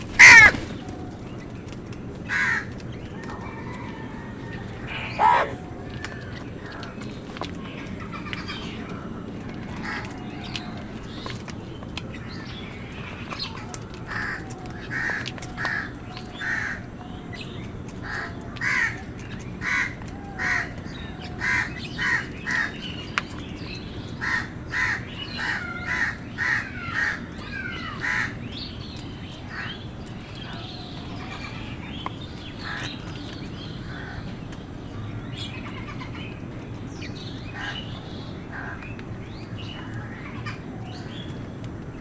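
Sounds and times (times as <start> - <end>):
crows cawing: 0.0 - 0.8, 2.3 - 2.8, 4.9 - 5.7, 14.1 - 16.9, 18.0 - 22.8, 24.2 - 28.4, 38.5 - 38.8
birds chirping: 0.0 - 42.0
low background noise: 0.0 - 42.0.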